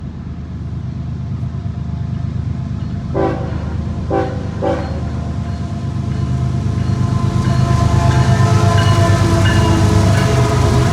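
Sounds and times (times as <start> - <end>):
diesel train rumble: 0.0 - 10.9
train horn blasts: 3.2 - 5.2.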